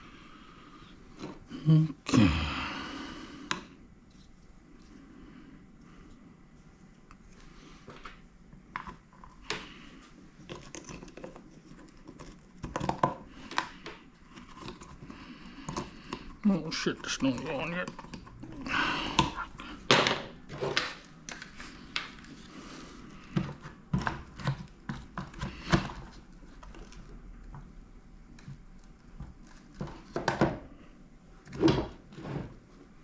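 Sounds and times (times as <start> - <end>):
tools and parts clicking on workbench: 20.0 - 21.1.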